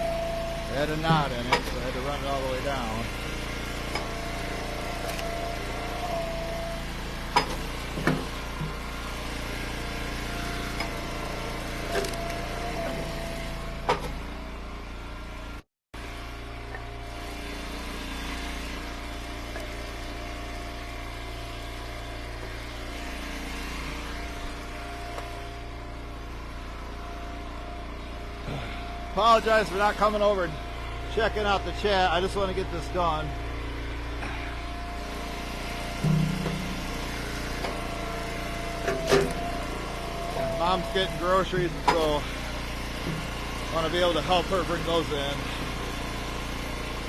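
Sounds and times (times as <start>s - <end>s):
wood splitter engine running: 0.0s - 47.0s.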